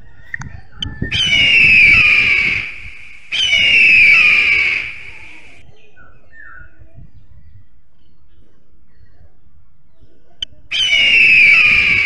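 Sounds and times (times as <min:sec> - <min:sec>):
owl screeching: 0:01.0 - 0:05.6, 0:10.7 - 0:12.0.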